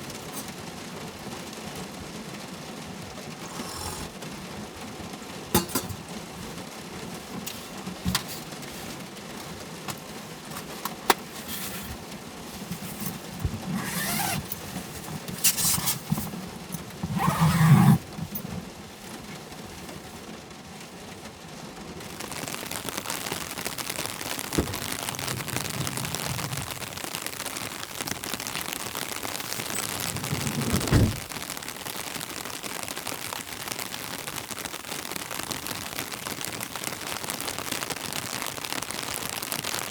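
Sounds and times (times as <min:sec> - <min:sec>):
steady rain: 0:00.0 - 0:39.9
rustling bursts: 0:05.8 - 0:32.2.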